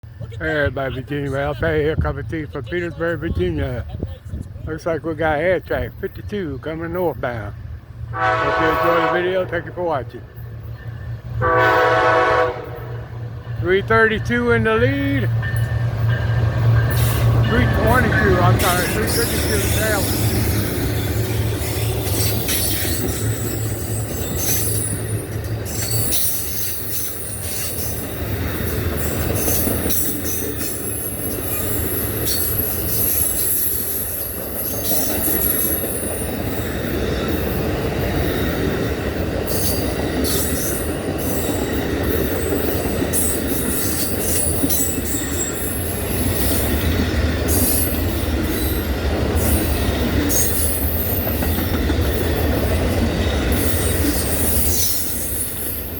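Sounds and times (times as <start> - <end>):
train cars rumbling past: 0.0 - 55.9
steel wheels squealing: 15.3 - 55.9.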